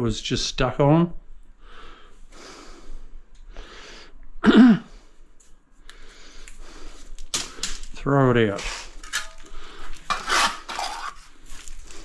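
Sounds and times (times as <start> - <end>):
man breathing in noisy puffs: 1.6 - 4.2, 5.8 - 7.8, 9.4 - 10.1
man cough-like grunt: 4.4 - 5.0.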